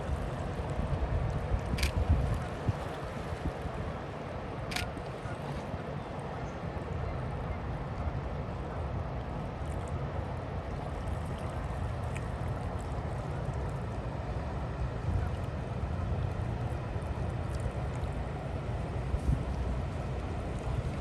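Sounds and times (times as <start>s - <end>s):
wind buffeting microphone: 0.0s - 5.4s
ship low rumble: 0.0s - 21.0s.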